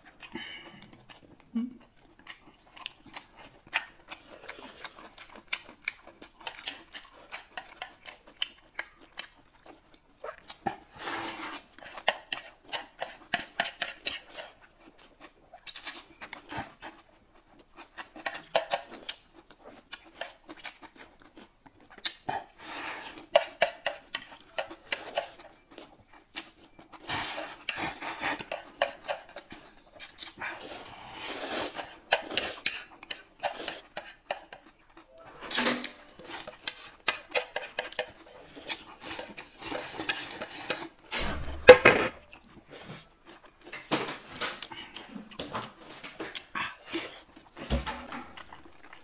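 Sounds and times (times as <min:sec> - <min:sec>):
chopsticks tapping plates: 0:32.1 - 0:34.7, 0:35.6 - 0:40.9.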